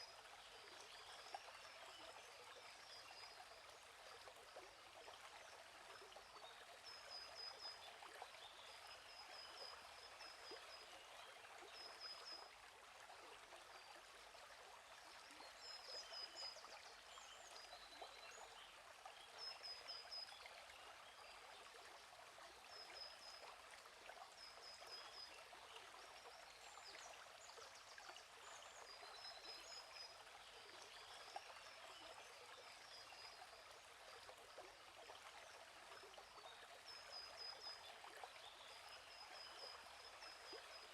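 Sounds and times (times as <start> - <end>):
stream flowing: 0.0 - 40.9.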